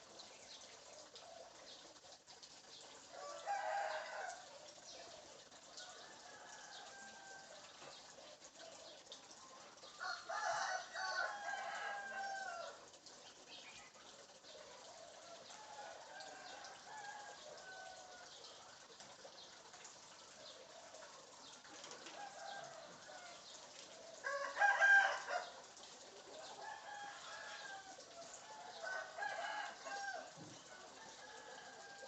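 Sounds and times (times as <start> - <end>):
rooster crowing: 3.2 - 4.4, 5.8 - 7.6, 10.0 - 12.8, 24.2 - 25.6, 26.5 - 32.0.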